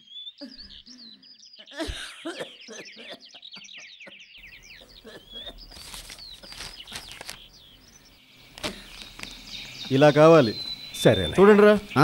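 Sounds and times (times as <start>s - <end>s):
small birds chirping: 0.0s - 12.0s
background hiss: 4.6s - 12.0s
faint clicks and rustling: 5.7s - 7.5s.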